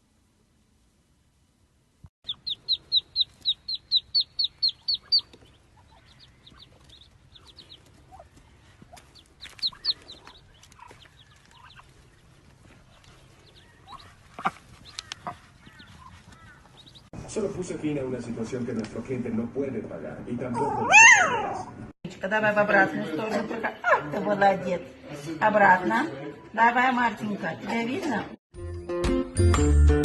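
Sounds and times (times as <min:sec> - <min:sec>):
bird peeping: 0:02.2 - 0:17.1.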